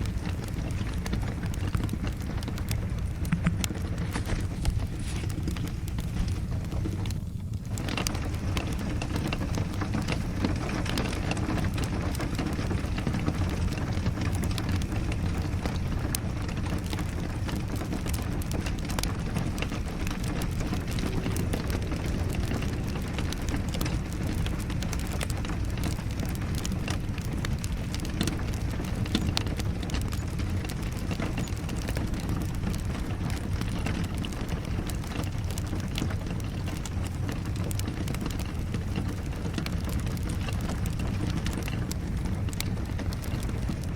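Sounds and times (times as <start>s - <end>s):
low rumble: 0.0s - 30.8s
steady rain: 0.0s - 43.9s
wood fire crackling: 0.0s - 43.9s.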